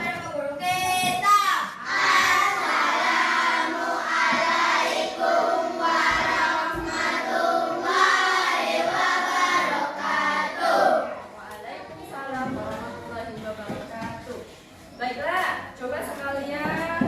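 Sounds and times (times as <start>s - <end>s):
children singing in unison: 1.8s - 11.1s.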